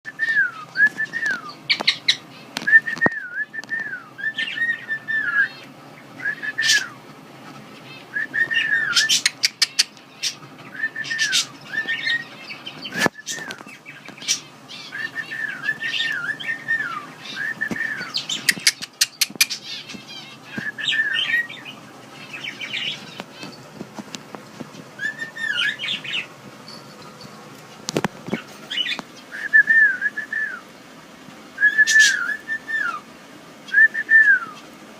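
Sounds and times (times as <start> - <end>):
cockatiel whistling: 0.1 - 5.6, 6.2 - 7.0, 8.1 - 9.9, 10.7 - 12.3, 14.9 - 19.4, 20.5 - 21.6, 25.0 - 25.9, 28.8 - 30.6, 31.6 - 33.0, 33.7 - 34.6
bird chirps: 7.8 - 23.6, 25.0 - 27.2.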